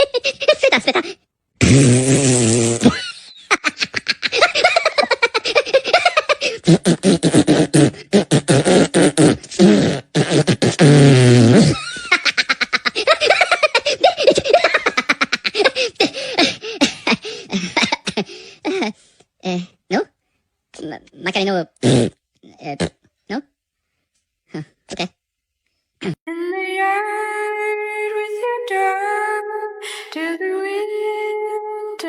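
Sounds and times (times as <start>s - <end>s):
short pitched vocal noises: 24.5s - 25.2s, 26.0s - 26.2s.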